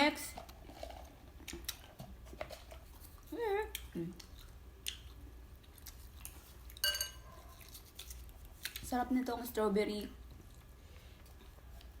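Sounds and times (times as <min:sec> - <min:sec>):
chewing: 0:00.4 - 0:08.9.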